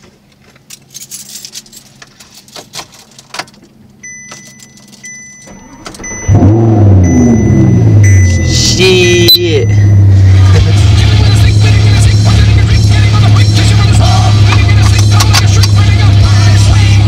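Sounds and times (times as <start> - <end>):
keys jangling: 0.7 - 3.6, 4.3 - 5.5
ignition clicks: 2.7 - 8.3, 14.2 - 16.1
thin high tone: 4.1 - 10.8
car engine starting and revving: 5.5 - 17.0.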